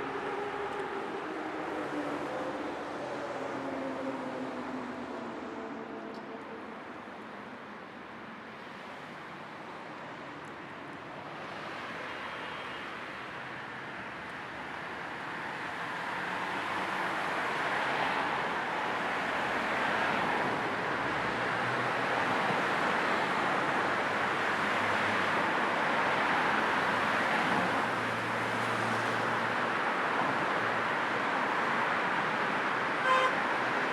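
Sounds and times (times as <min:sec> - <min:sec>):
car road noise: 0:14.4 - 0:33.9.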